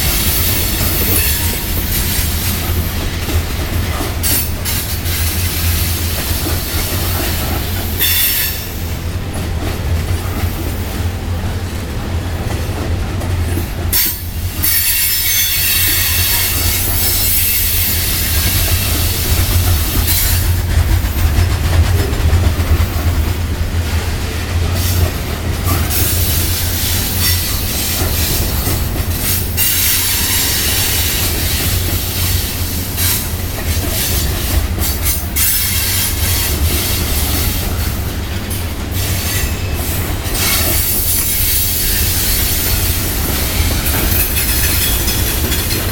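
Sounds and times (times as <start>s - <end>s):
freight train rumbling past: 0.0s - 45.9s
high wheel squeal: 14.0s - 19.2s, 29.2s - 33.3s.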